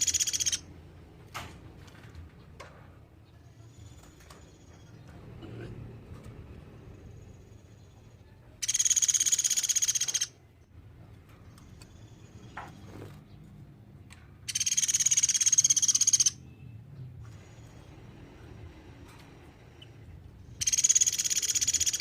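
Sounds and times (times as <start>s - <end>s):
woodpecker rattling trill: 0.0s - 0.7s, 8.6s - 10.4s, 14.5s - 16.4s, 20.4s - 22.0s.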